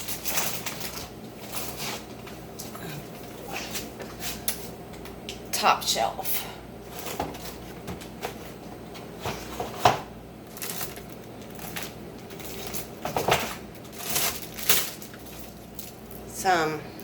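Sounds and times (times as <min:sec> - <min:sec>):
bags rustling: 0:00.0 - 0:02.2, 0:10.5 - 0:16.3.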